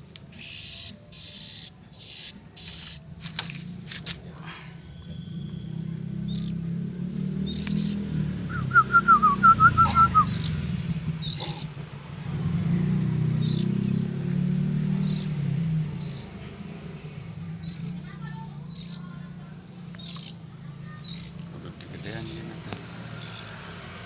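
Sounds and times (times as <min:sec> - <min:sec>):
bird chick chirping: 0:00.0 - 0:03.1, 0:07.4 - 0:11.8, 0:16.0 - 0:23.6
lower whistled bird notes: 0:00.0 - 0:03.1, 0:04.8 - 0:24.0.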